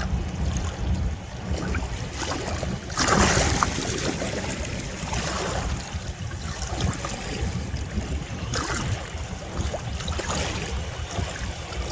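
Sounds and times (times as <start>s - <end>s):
waves washing on shore: 0.0s - 11.9s
wind rumbling on microphone: 0.0s - 11.9s.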